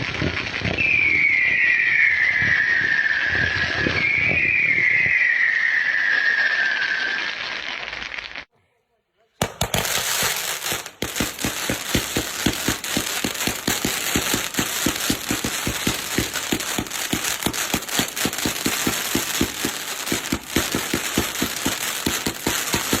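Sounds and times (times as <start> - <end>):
crackling hiss: 0.0 - 8.5
fireworks popping: 0.0 - 8.5, 9.4 - 23.0.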